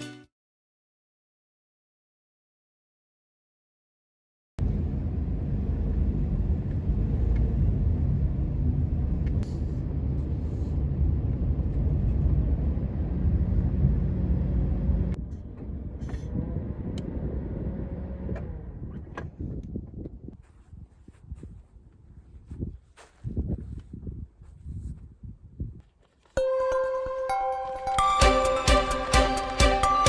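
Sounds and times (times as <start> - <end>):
quiet hum: 4.6 - 19.8
vehicle road noise rumble: 4.6 - 21.2.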